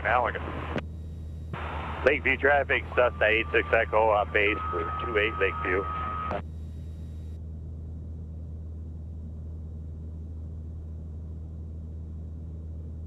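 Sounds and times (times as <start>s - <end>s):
piston aircraft engine droning: 0.0s - 13.0s.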